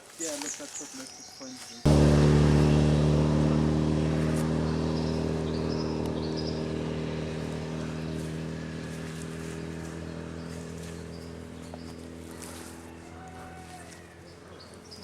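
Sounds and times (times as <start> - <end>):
engine droning: 1.9 - 15.0
high bird chirps: 4.4 - 8.8.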